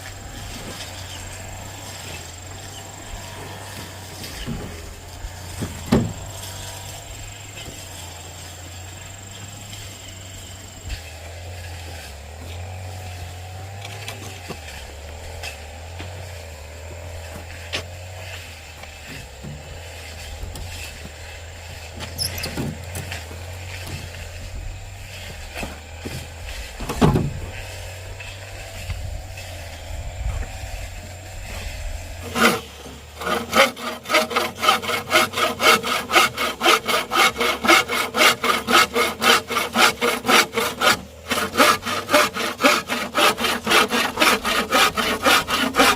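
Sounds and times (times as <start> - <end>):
hand saw cutting wood: 0.0 - 45.9
knocks: 5.5 - 6.2.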